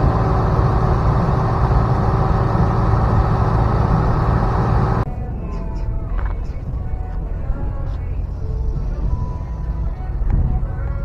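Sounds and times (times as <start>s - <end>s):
car engine running: 0.0s - 5.1s.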